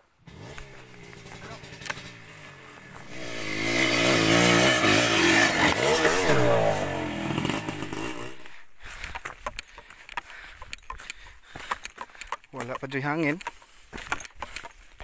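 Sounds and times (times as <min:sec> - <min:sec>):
dirt bike engine revving: 0:00.2 - 0:09.0.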